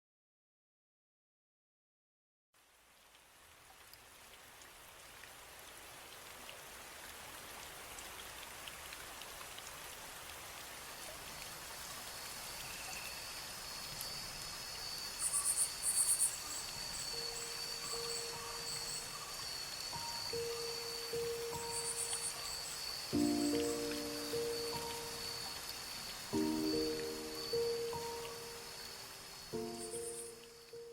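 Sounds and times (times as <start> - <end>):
rain hiss: 2.6 - 30.9.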